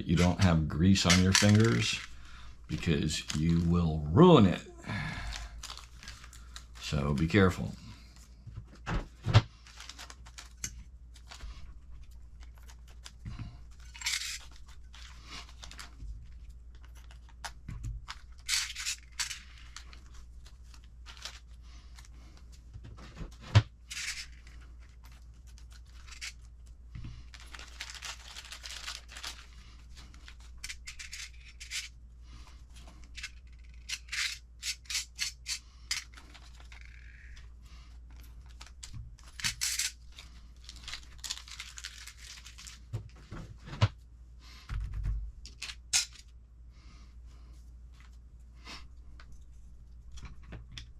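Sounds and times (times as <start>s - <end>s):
plastic bags rustling: 0.1s - 4.4s, 5.0s - 7.5s, 27.2s - 31.4s, 40.0s - 43.1s
small plastic parts clicking: 0.2s - 2.2s, 16.7s - 22.1s, 27.3s - 31.9s, 33.1s - 37.5s.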